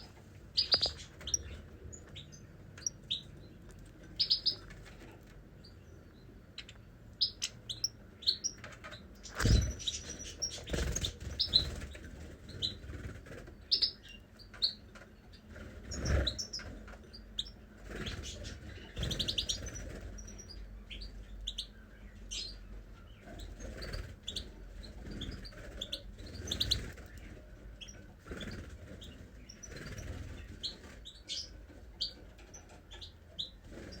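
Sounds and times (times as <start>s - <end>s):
small cage birds chirping: 0.0s - 34.0s
wing flutters or thumps: 9.3s - 10.0s.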